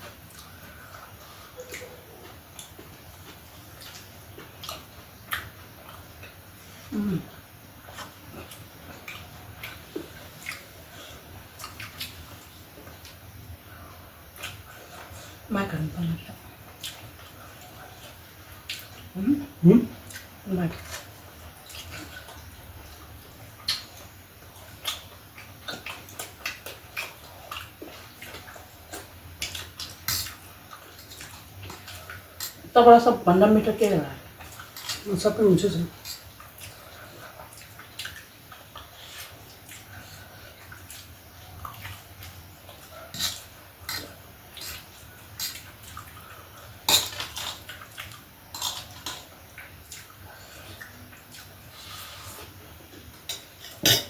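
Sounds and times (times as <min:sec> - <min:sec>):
wet chewing and lip smacks: 0:07.4 - 0:13.3, 0:36.0 - 0:51.8
cutlery clinking on a plate: 0:53.3 - 0:54.0.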